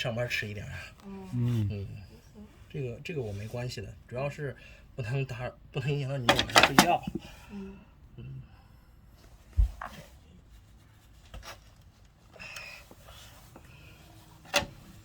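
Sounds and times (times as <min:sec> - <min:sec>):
handling clicks and knocks: 0:06.3 - 0:07.2.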